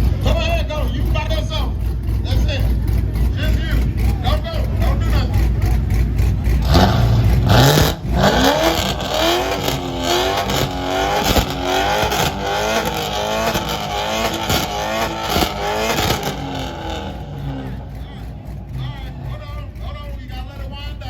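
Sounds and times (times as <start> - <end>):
car engine revving hard: 0.0 - 21.0.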